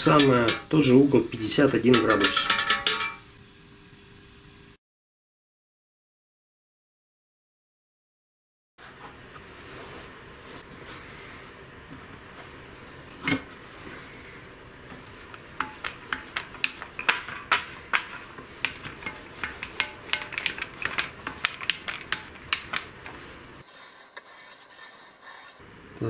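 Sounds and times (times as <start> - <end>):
metal scraping strokes: 13.7 - 25.6.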